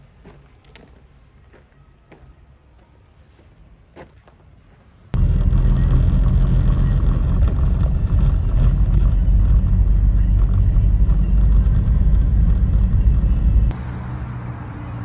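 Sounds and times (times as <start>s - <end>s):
engine rumbling: 5.1s - 15.0s.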